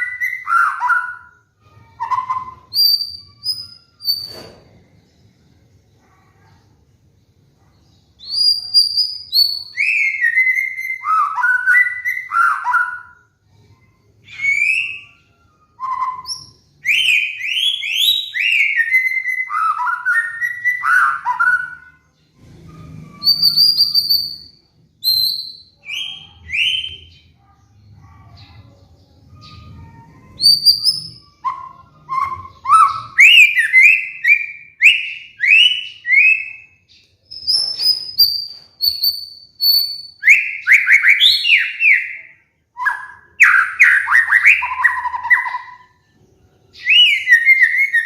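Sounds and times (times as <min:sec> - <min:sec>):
bird singing whistled phrases: 0:00.0 - 0:04.5, 0:08.2 - 0:13.3, 0:14.2 - 0:22.0, 0:22.6 - 0:27.3, 0:29.4 - 0:46.0, 0:46.8 - 0:48.0.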